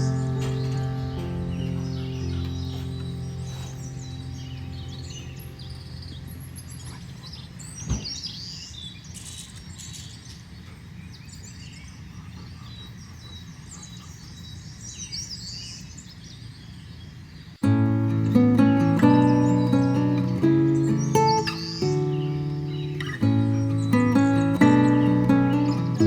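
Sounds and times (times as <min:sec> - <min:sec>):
low background wash: 0:00.0 - 0:07.8
small birds chirping: 0:00.0 - 0:26.0.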